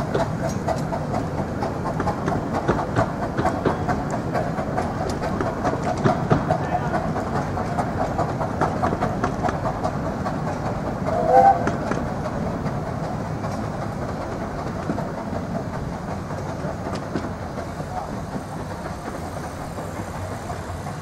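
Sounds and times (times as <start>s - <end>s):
train wheels clicking over rail joints: 0.0s - 21.0s
brief whistle-like tone: 11.1s - 11.8s.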